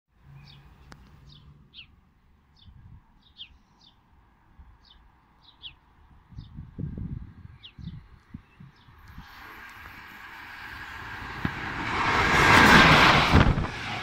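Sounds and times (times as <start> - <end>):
songbird chirping: 0.2 - 6.6, 7.5 - 9.1.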